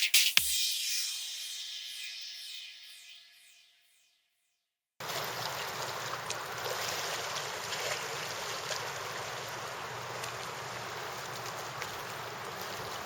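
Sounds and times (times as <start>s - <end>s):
river water flowing: 5.0s - 13.0s.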